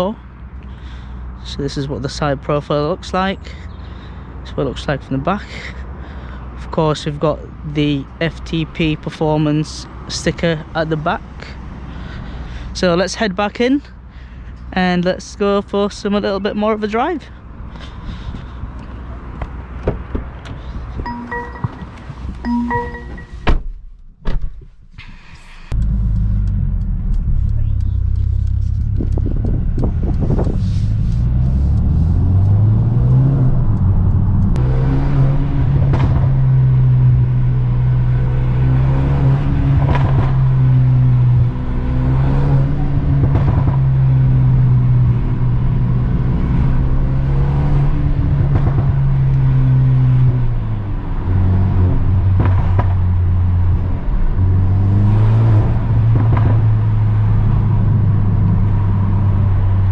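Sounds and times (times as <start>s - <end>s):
exhaust cracks: 25.7s - 47.1s, 47.8s - 51.3s, 51.9s - 59.9s
car engine revving: 25.7s - 59.9s.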